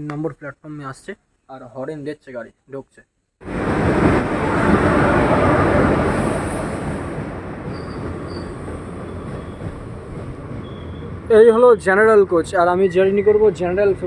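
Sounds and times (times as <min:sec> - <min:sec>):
train wheels rumbling on track: 0:03.4 - 0:14.0.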